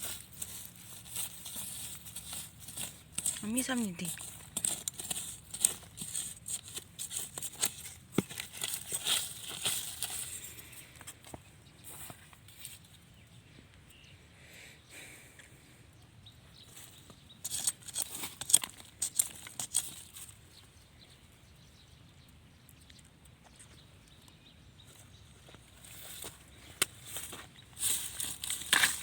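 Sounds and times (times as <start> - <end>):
dry leaves and twigs rustling: 0.0 - 13.4, 16.6 - 21.2, 24.8 - 29.0.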